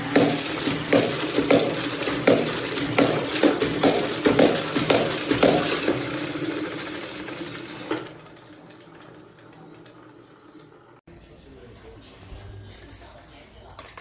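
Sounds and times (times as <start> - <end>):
mop bucket spinner rattling: 0.0 - 11.0.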